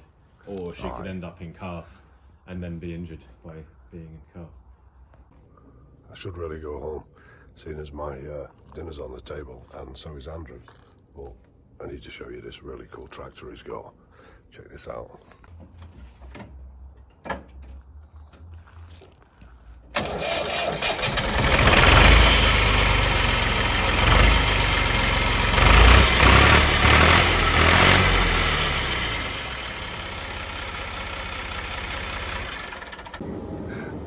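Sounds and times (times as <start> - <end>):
tractor engine running: 19.9 - 34.0.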